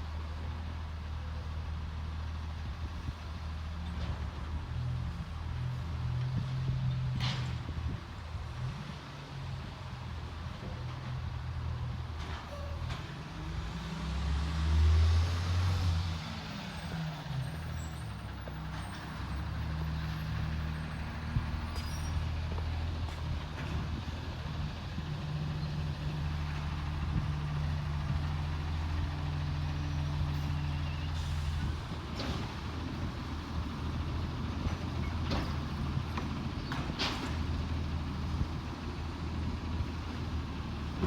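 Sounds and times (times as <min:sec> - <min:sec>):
diesel engine revving: 0:13.2 - 0:41.0.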